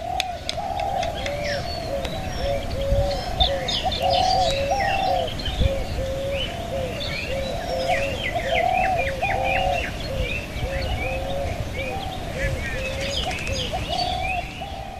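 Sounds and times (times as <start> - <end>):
doves cooing: 0.0 - 14.9
small birds chirping: 0.0 - 14.9.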